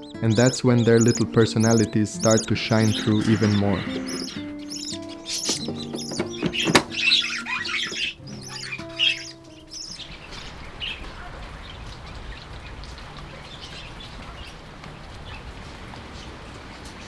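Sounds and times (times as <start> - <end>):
background music: 0.0 - 10.9
budgies chirping: 0.0 - 17.0
steady rain falling: 8.1 - 17.0.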